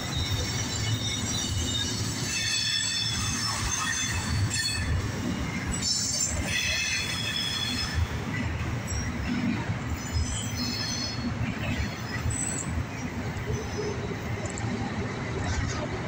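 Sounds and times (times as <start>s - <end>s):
high-pitched wheel squeal: 0.0s - 9.3s
steel wheels rumbling on rails: 0.0s - 16.0s.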